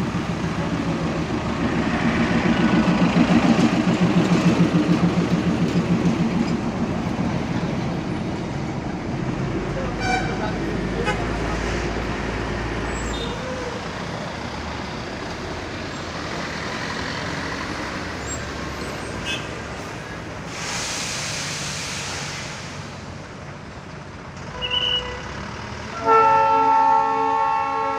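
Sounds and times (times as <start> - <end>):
diesel locomotive rumbling: 0.0 - 27.9
locomotive horn multi-tone chord: 10.0 - 10.4, 25.9 - 27.9
air hissing: 20.4 - 23.0.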